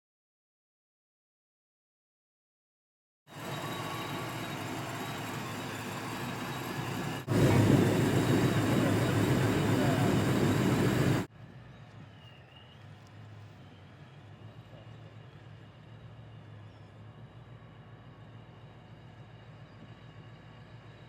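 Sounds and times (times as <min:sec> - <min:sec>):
engine exhaust running: 0:03.5 - 0:11.3.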